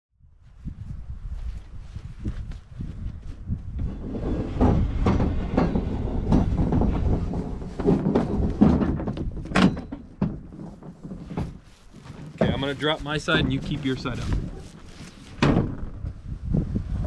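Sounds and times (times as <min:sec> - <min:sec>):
canoe hull scraping on truck: 0:03.8 - 0:16.1.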